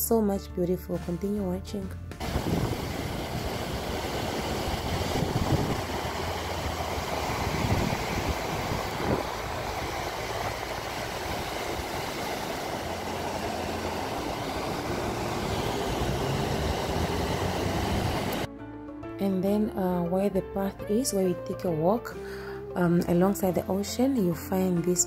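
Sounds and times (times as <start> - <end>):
ocean surf washing in: 2.2 - 18.5.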